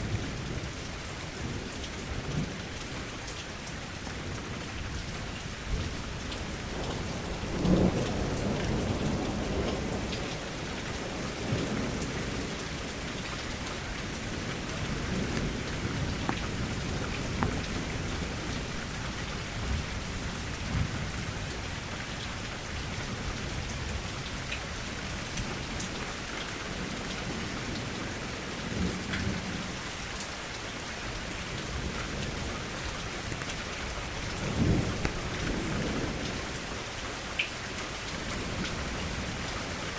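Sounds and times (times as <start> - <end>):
steady rain falling: 0.0 - 39.9
thunder rumbling: 5.8 - 22.1, 31.2 - 36.6.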